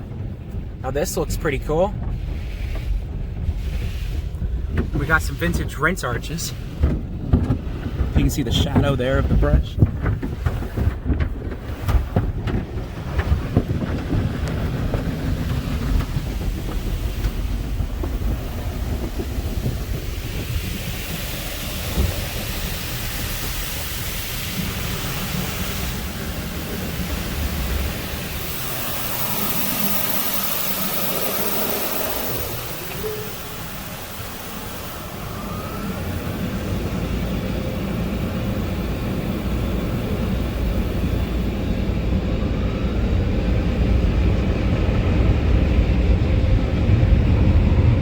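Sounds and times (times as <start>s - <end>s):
water spraying on car: 0.0s - 45.8s
low rumble with knocks: 0.0s - 48.0s
high hiss: 19.7s - 41.7s.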